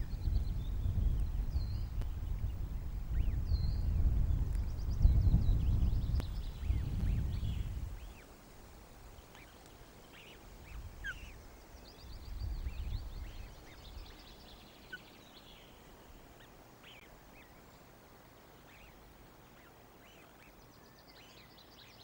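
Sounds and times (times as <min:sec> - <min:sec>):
faint bird chirps and peeps: 0:00.0 - 0:22.0
faint ticks: 0:06.1 - 0:07.2, 0:09.2 - 0:10.4.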